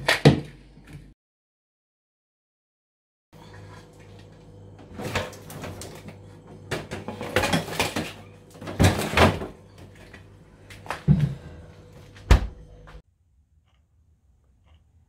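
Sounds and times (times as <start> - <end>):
metal bowl clattering in drawer: 6.7 - 9.5.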